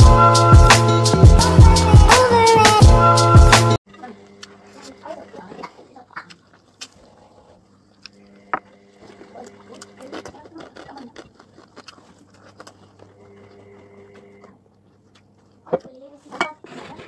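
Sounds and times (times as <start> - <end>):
small clicks and scrapes: 9.1 - 17.0.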